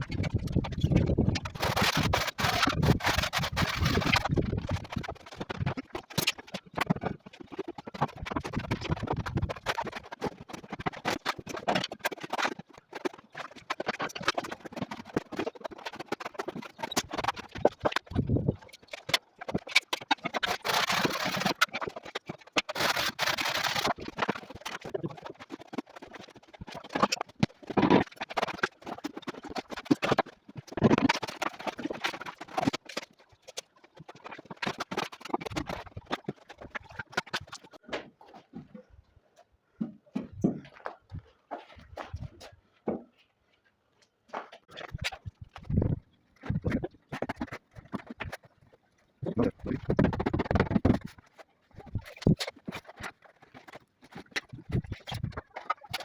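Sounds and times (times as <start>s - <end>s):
scraping sounds: 0.0s - 39.0s.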